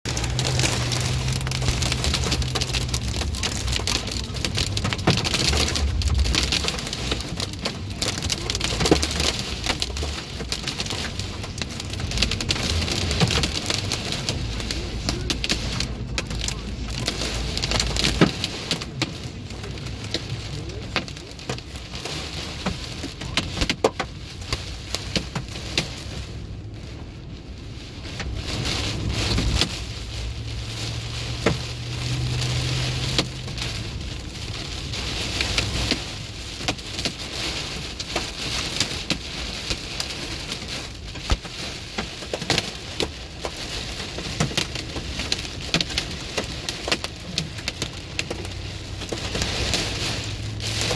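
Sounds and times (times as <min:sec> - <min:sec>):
low rumble: 0:00.0 - 0:23.0
hailstones knocking: 0:00.1 - 0:26.1, 0:28.1 - 0:50.9.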